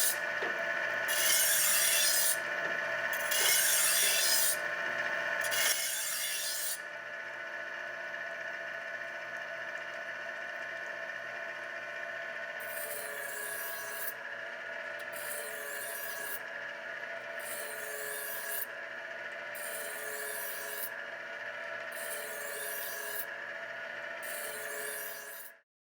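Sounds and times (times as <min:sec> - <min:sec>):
knife honer motor hum: 0:00.0 - 0:05.9
knife blade rasping through wheels: 0:00.0 - 0:06.8, 0:21.9 - 0:23.3, 0:24.2 - 0:25.6.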